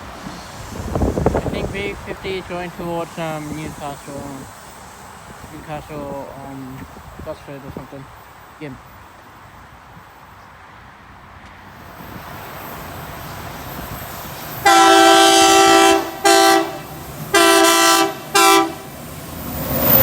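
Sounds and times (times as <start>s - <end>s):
train rumble: 0.0s - 20.0s
locomotive horn chord blasts: 14.6s - 19.0s.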